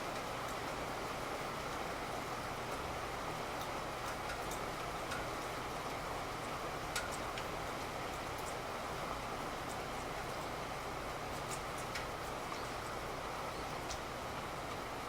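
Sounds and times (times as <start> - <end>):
steady rain hiss: 0.0 - 15.0
raindrop ticks: 3.5 - 8.7, 9.5 - 10.6, 11.2 - 13.0, 13.7 - 14.9.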